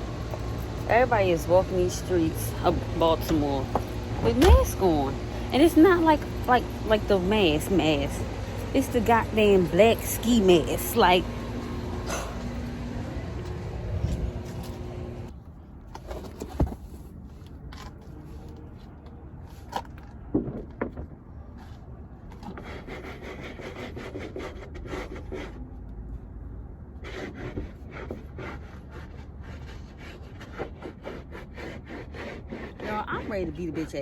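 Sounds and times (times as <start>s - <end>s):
rubbing and scraping strokes: 27.0s - 34.0s.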